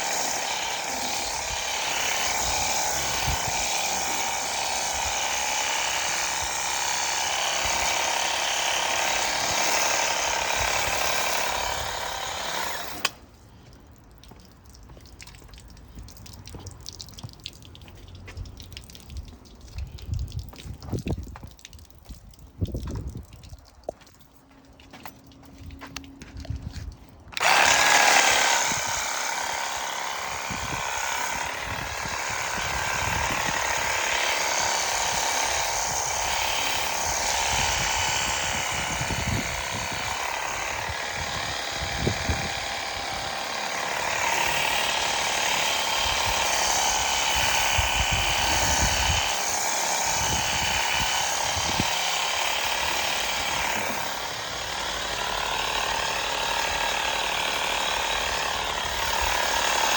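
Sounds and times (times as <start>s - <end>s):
pressure washer pump whining: 0.0s - 13.4s, 27.3s - 59.9s.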